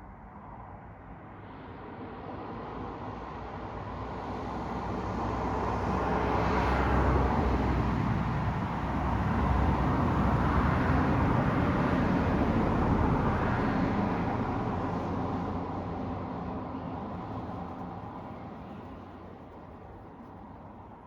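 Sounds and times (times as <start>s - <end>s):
cars passing: 6.0s - 20.2s.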